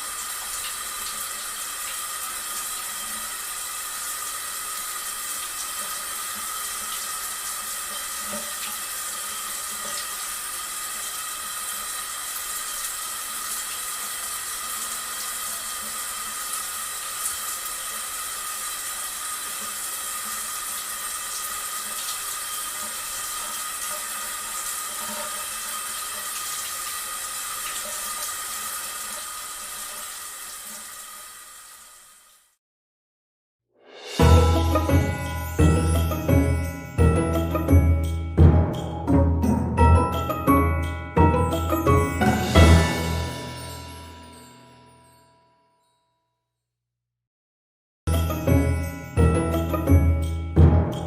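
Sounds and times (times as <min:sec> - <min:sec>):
running water pouring: 0:00.0 - 0:32.3, 0:41.2 - 0:44.6.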